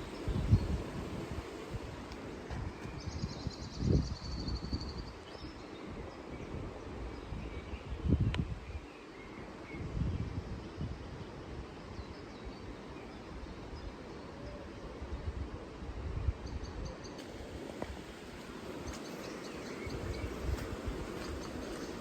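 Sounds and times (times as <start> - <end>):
wind rumbling on microphone: 0.0 - 8.9, 9.5 - 22.0
insects chirping: 17.2 - 22.0.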